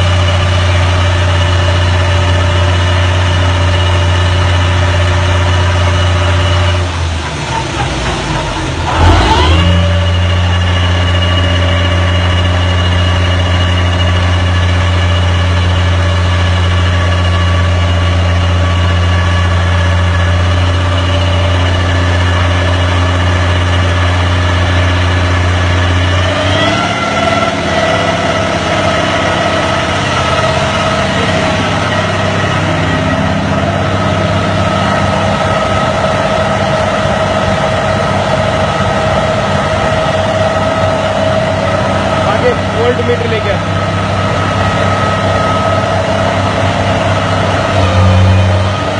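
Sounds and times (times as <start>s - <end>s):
generator engine running: 0.0s - 48.9s.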